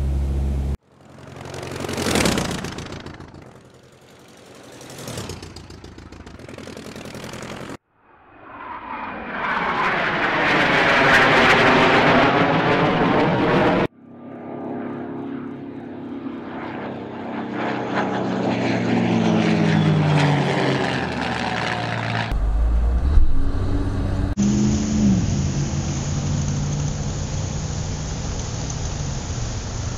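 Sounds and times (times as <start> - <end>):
deep engine rumble: 0.0 - 7.8, 17.2 - 29.9
propeller plane engine running: 0.0 - 7.8, 8.5 - 29.9
aircraft fly-by rush: 0.0 - 29.9.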